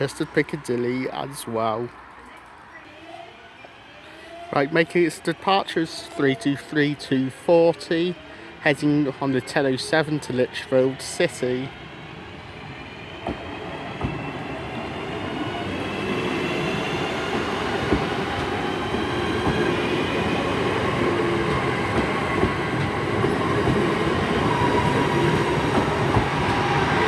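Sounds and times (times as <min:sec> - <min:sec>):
electric train motors whining: 0:09.9 - 0:27.0
train wheels clicking over joints: 0:13.2 - 0:15.2, 0:16.0 - 0:26.8.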